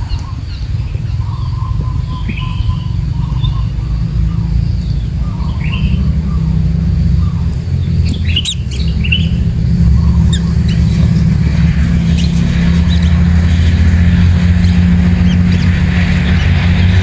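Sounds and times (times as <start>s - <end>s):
thin bird chirps: 0.0s - 11.3s
loud low rumble: 0.0s - 17.0s
sharp chirps and clicks: 0.0s - 17.0s.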